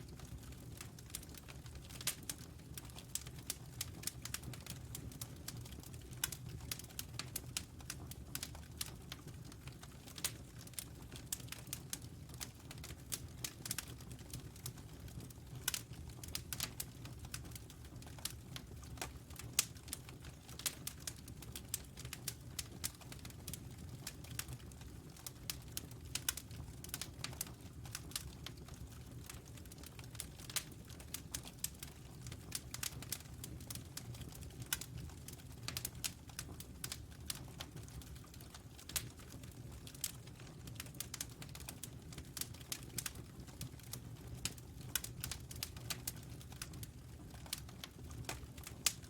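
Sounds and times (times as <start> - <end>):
low rumble of burning fire: 0.0 - 49.0
fire pops and snaps: 15.6 - 49.0.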